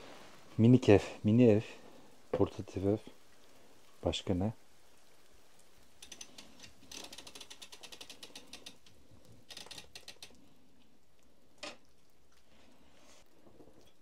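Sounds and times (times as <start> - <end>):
rapid ratchet-like clicking: 6.0 - 8.9, 9.5 - 10.4.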